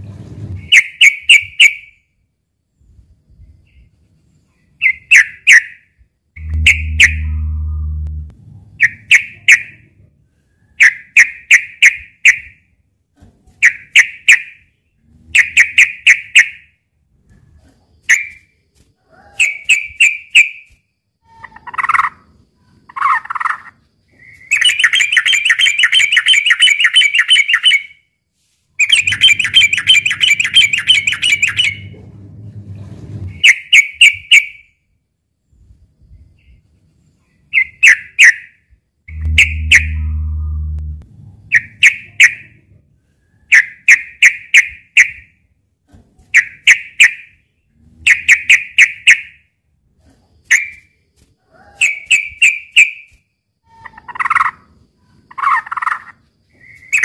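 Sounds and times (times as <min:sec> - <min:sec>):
bird chattering: 0:06.4 - 0:08.0, 0:39.1 - 0:40.7
bird calling sharp notes: 0:06.4 - 0:09.4, 0:39.1 - 0:42.4.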